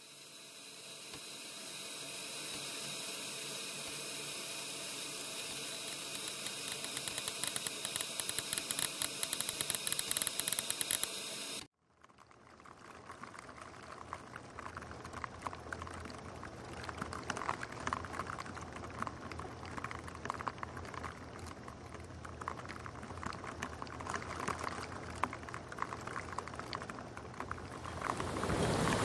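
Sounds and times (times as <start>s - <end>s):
rain pattering on a window: 11.8s - 29.0s.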